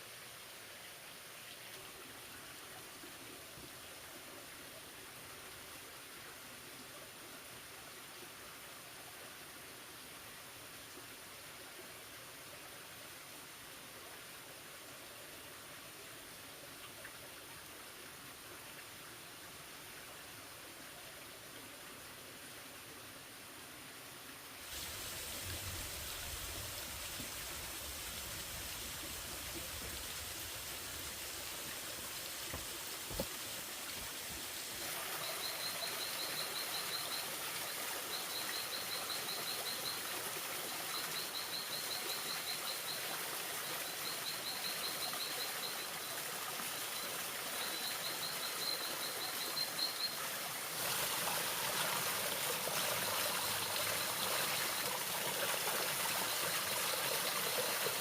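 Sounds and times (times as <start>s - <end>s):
stream rushing: 24.6s - 40.6s, 48.6s - 58.0s.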